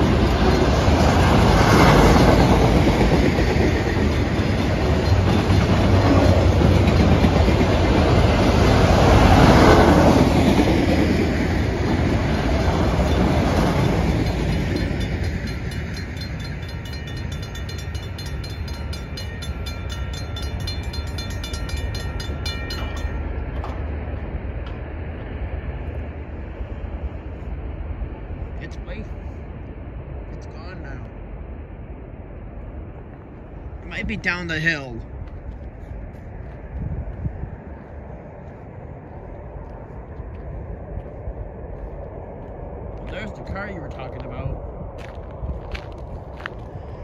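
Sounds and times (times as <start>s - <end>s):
train wheels clacking over rail joints: 0.0s - 8.8s
crossing bell ringing: 3.6s - 7.7s, 12.8s - 23.9s.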